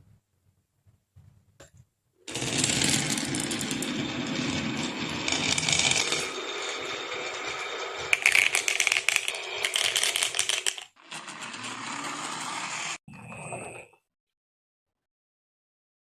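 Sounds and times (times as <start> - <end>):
marbles rolling on a wooden run: 2.3 - 13.0.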